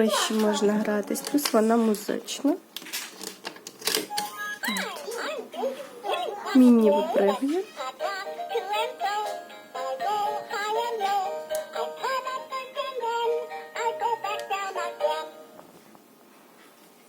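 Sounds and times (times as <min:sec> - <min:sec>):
toy electronic tune: 0:04.1 - 0:04.9
synthetic singing voice: 0:04.7 - 0:15.3.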